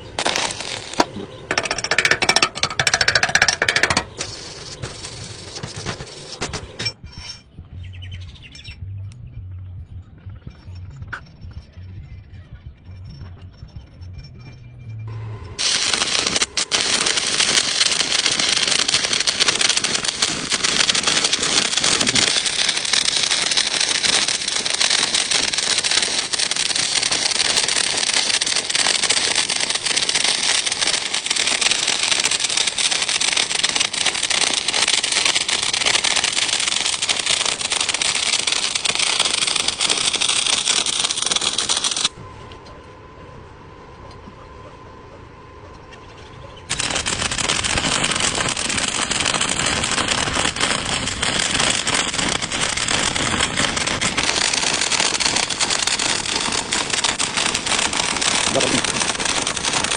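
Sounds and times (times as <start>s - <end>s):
welding arc crackling: 0.0s - 6.9s, 15.1s - 42.2s, 46.7s - 59.9s.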